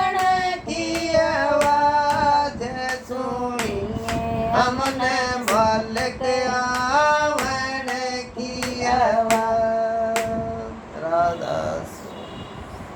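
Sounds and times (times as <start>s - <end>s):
hand claps: 0.0s - 9.6s, 10.2s - 10.4s
woman singing: 0.0s - 9.6s.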